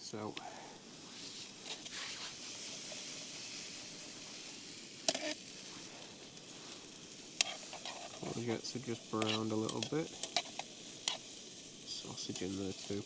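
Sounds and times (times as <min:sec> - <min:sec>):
vegetables sizzling in a skillet: 0:00.0 - 0:13.0.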